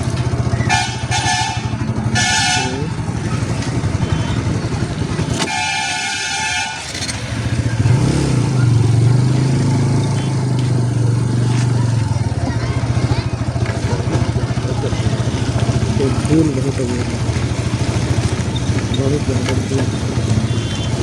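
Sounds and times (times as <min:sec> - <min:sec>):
motorcycle engine running: 0:00.0 - 0:21.0
vehicle horn honking: 0:00.6 - 0:03.2, 0:03.8 - 0:08.0, 0:19.8 - 0:21.0.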